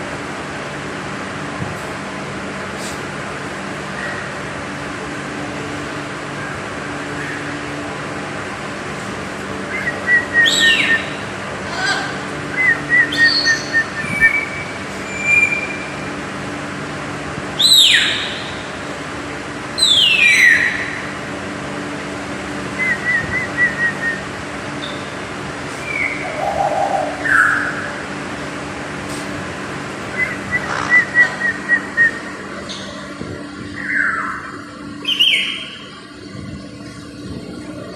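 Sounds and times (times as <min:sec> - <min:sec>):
steady low hum: 0:00.0 - 0:37.9
parrot trills and chirps: 0:09.8 - 0:11.9, 0:30.1 - 0:31.4.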